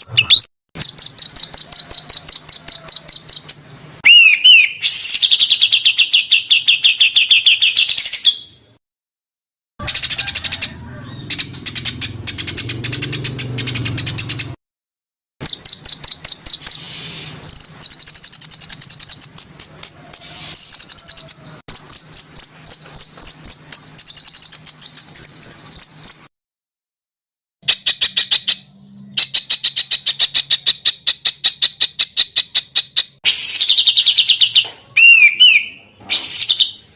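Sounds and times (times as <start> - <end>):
songbird calls: 0.0 - 8.5.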